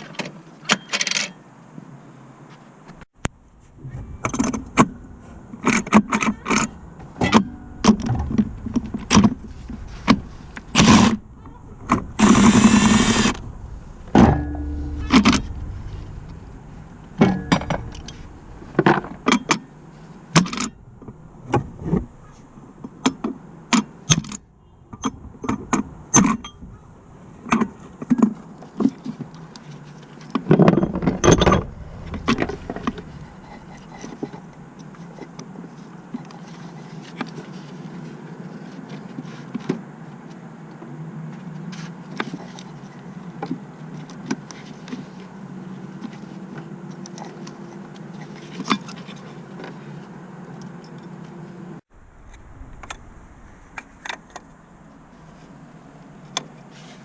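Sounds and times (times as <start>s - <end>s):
steady low hum: 3.2s - 24.8s, 30.8s - 35.3s, 51.6s - 56.4s.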